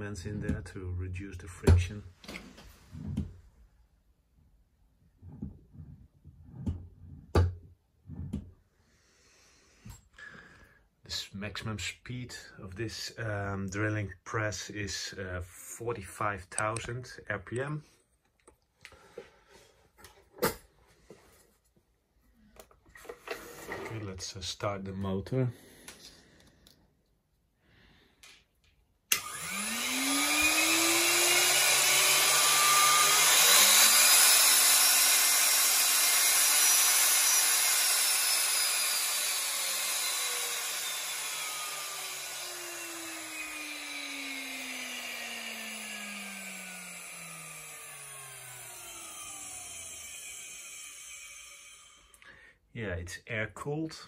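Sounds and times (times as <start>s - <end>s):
drill press motor whine: 29.1s - 52.2s.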